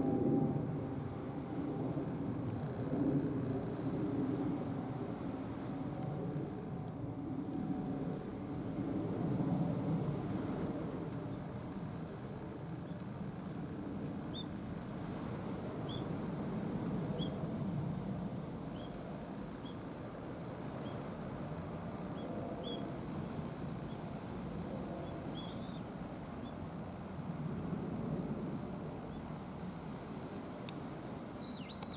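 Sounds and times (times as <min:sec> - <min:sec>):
steady low rumble: 0:00.0 - 0:26.4
small bird chirping: 0:31.4 - 0:31.9.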